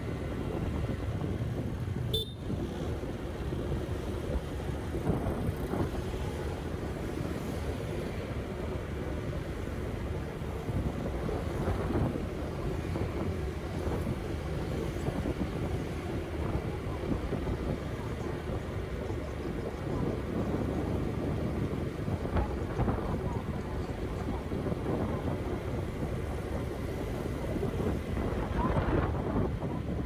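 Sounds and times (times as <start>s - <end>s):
traffic rumble: 0.0s - 30.0s
faint voices: 10.8s - 30.0s.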